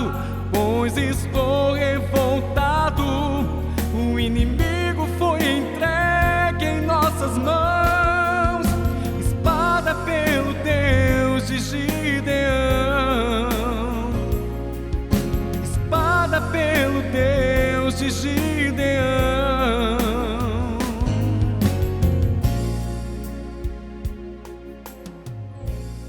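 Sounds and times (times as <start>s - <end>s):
man singing with vibrato: 0.0s - 14.8s, 15.6s - 22.0s
band playing gospel music: 0.0s - 26.0s.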